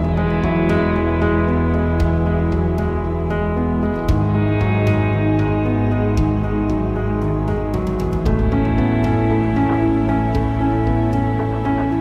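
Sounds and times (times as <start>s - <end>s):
soft slow instrumental music: 0.0s - 12.0s.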